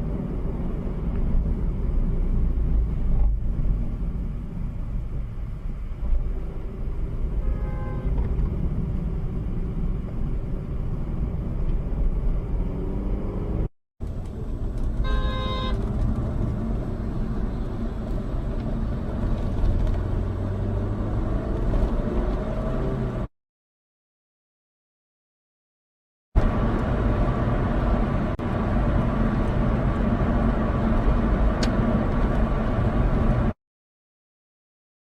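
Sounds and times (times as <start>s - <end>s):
car road and engine rumble: 0.0s - 23.3s, 26.4s - 33.6s
faint car horn: 7.4s - 8.2s, 15.0s - 15.8s
loud car horn honking: 7.4s - 8.2s, 15.0s - 15.8s.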